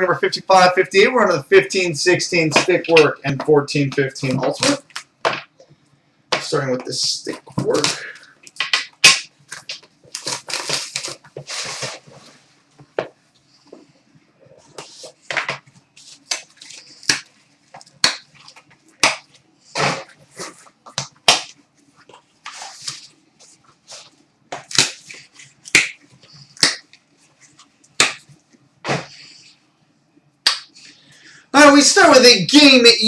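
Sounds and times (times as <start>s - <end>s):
packaging crinkling rustles: 9.4s - 12.4s.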